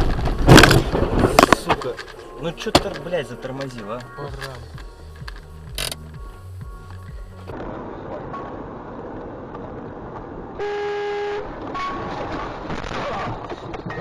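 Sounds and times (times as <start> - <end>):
road traffic noise: 0.0 - 14.0
car horn: 10.5 - 12.3.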